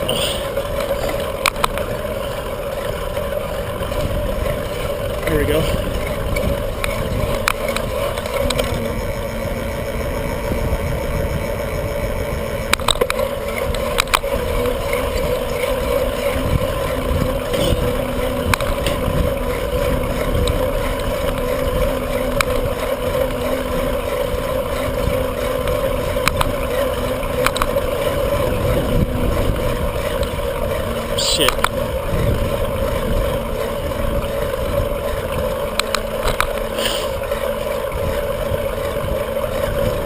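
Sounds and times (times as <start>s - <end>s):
bicycle tyres and drivetrain humming: 0.0s - 40.0s
wind rushing over microphone: 3.8s - 12.9s, 27.2s - 35.6s
sharp clicks: 26.2s - 26.5s.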